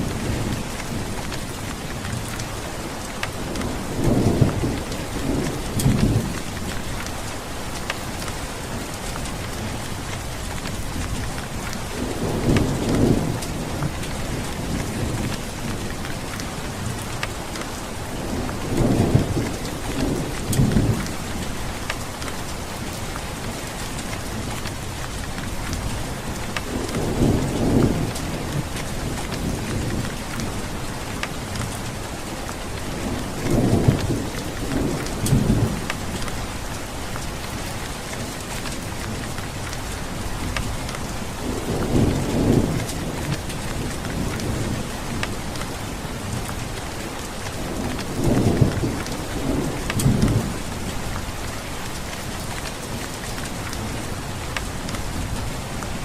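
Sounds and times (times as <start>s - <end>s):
steady rain falling: 0.0s - 56.0s
thunder rumbling: 47.5s - 56.0s.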